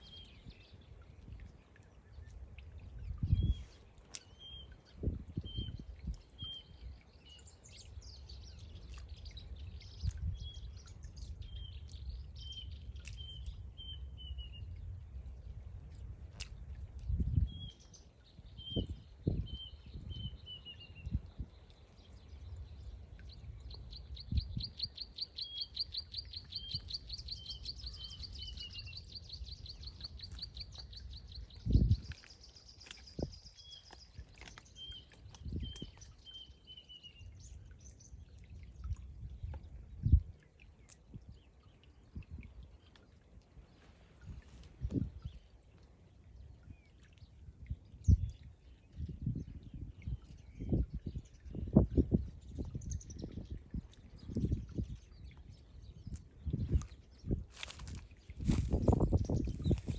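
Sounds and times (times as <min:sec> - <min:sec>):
bird chirping: 0:23.7 - 0:37.2.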